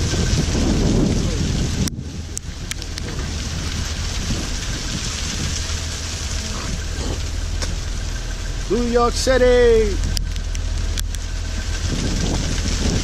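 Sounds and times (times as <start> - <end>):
hiss of rain hail and snow: 0.0 - 13.0
low rumble: 0.0 - 13.0
sharp clicks: 10.0 - 11.3.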